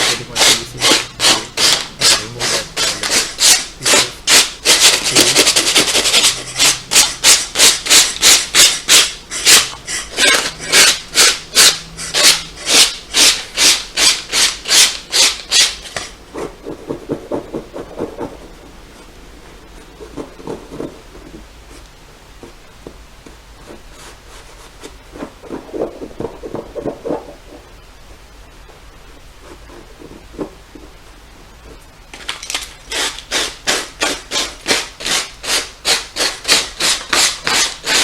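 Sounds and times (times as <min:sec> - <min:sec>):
sandpaper rubbing on leather: 0:00.0 - 0:16.0, 0:32.9 - 0:38.0.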